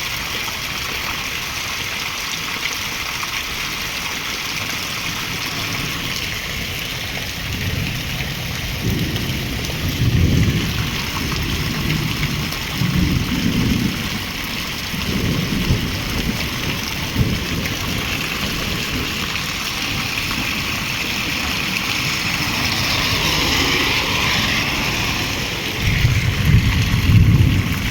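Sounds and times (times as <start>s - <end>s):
heavy rain: 0.0s - 27.9s
thunder rumbling: 7.3s - 27.9s.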